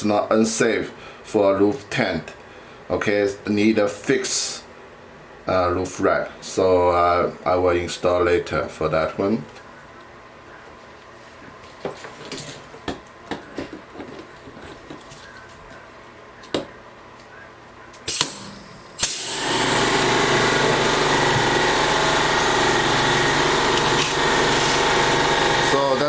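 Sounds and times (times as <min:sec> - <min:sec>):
air compressor motor running: 0:18.1 - 0:26.0.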